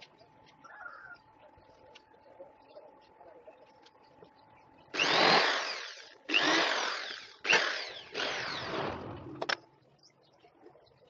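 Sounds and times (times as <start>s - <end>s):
power tool whining: 4.9s - 9.3s.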